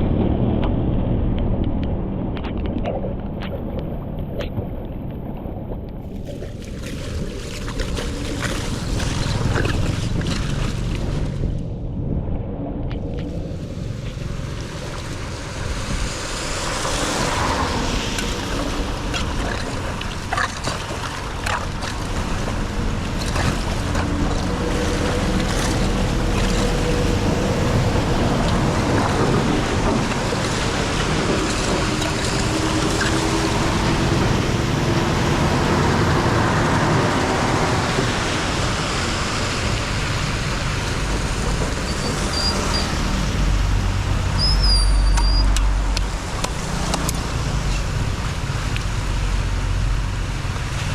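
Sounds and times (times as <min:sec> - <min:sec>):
water rushing into drain: 0:13.5 - 0:50.9.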